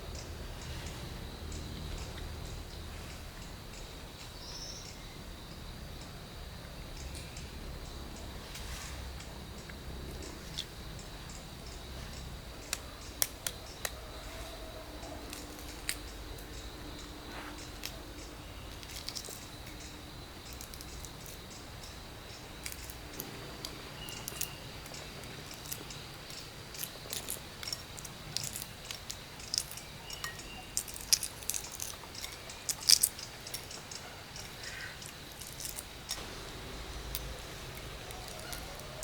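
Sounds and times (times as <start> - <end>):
small hard objects clicking: 12.1 - 14.0, 15.2 - 39.0.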